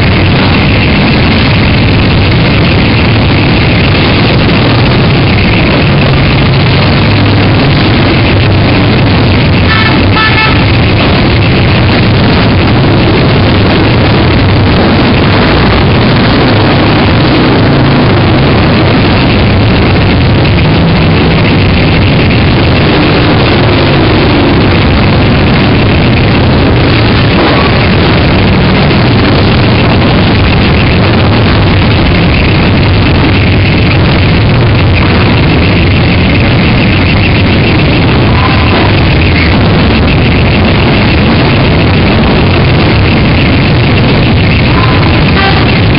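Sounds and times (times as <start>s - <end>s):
many motorcycles riding past: 0.0s - 45.9s.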